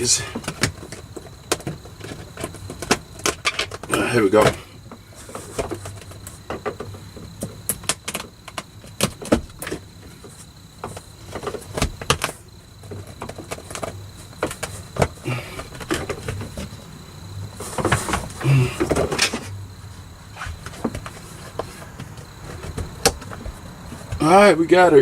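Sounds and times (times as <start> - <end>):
faint steady hum: 0.0 - 25.0
taps and knocks on metal panel: 22.6 - 24.2.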